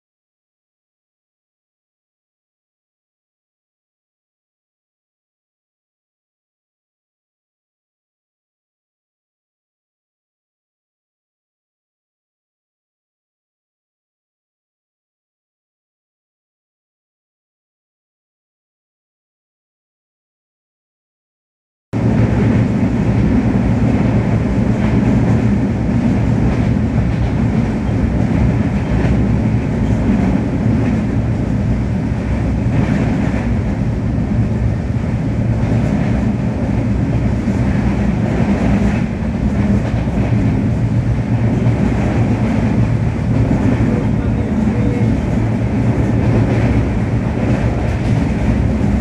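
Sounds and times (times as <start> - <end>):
train coaches rumbling and rattling: 22.0 - 49.0.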